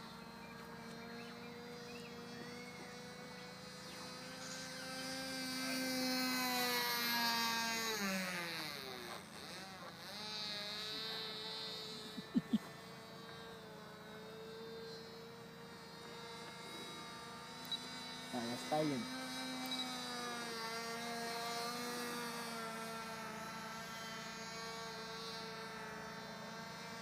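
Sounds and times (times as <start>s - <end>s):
model plane engine buzzing: 0.0s - 27.0s.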